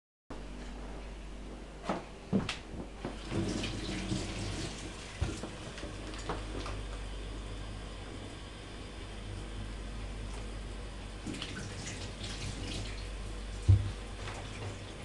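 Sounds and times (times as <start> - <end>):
running water: 3.0 - 6.8, 11.2 - 15.0.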